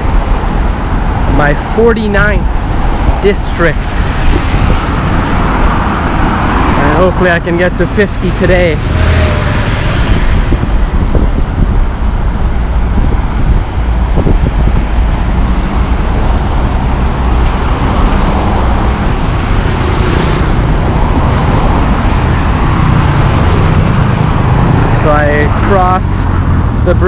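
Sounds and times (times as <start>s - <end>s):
road traffic noise: 0.0s - 27.0s
vehicle passing close: 8.4s - 11.8s, 12.9s - 25.8s.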